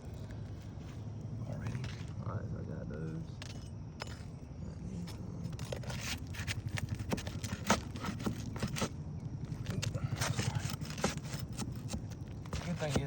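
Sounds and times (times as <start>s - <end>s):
scrapes on roof shingles: 5.6s - 9.0s, 9.6s - 13.0s.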